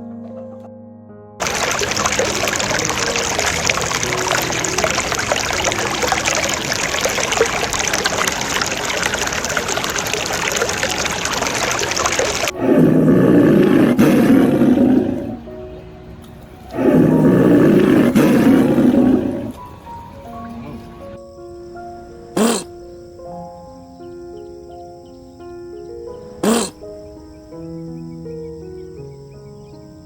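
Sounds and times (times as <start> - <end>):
rough low animal calls: 1.4 - 15.6, 16.7 - 19.7, 26.3 - 27.1.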